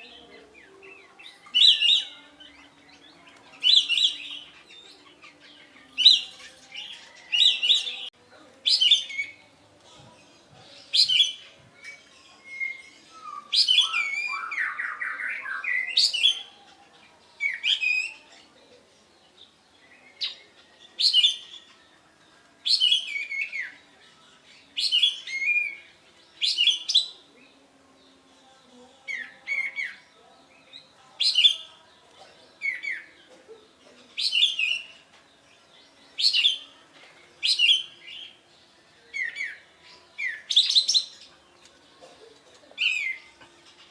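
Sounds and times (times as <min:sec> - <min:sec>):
bird singing whistled phrases: 0:11.0 - 0:16.5.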